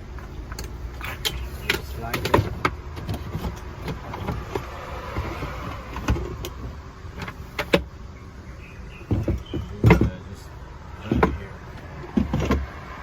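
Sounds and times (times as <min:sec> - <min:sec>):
boards knocking and clicking: 0:01.0 - 0:07.9, 0:09.0 - 0:10.3, 0:11.0 - 0:12.8.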